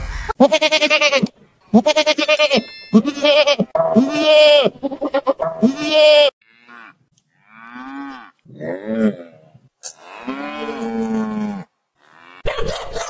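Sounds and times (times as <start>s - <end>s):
goat kid bleating: 0.4s - 6.3s, 9.9s - 11.5s
cow mooing: 5.4s - 12.5s.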